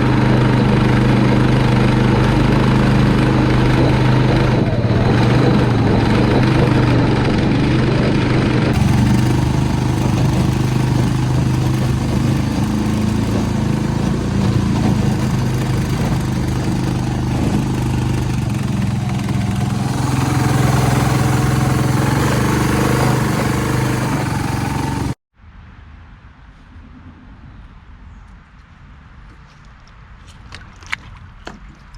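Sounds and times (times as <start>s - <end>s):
small gasoline engine running: 0.0s - 25.2s.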